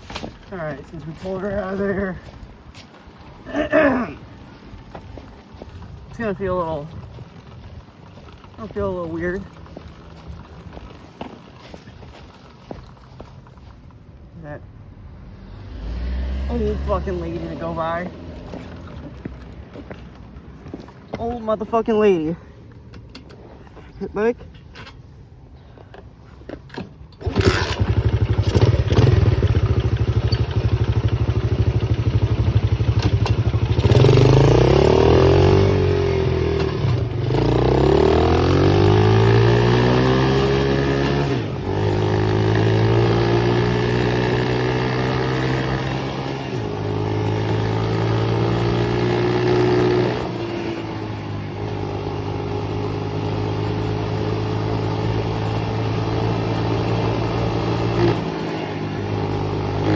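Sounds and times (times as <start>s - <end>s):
pit bike engine revving: 15.2s - 19.2s, 27.2s - 59.9s.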